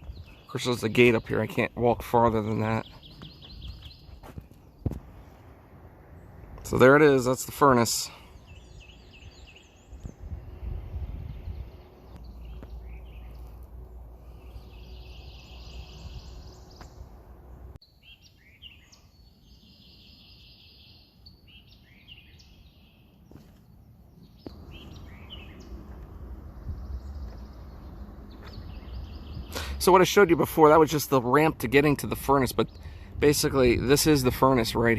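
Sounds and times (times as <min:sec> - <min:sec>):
wild birds chirping: 0:00.0 - 0:34.9
low rumble: 0:24.5 - 0:29.6.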